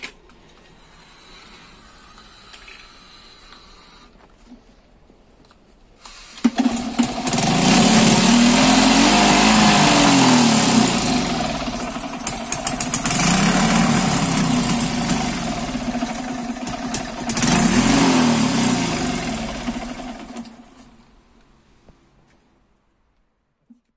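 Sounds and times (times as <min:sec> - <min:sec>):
motorcycle engine revving: 0:06.4 - 0:20.9.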